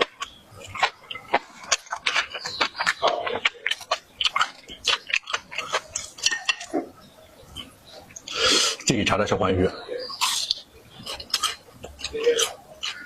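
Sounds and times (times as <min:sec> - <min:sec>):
crunching of crispy fried food: 0:00.0 - 0:06.8, 0:10.1 - 0:13.0.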